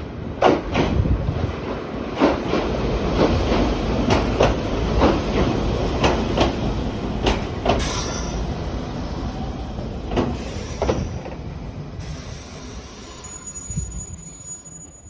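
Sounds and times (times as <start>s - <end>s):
train rumbling on track: 0.0s - 15.0s
wheels clicking over rail joints: 2.1s - 8.9s.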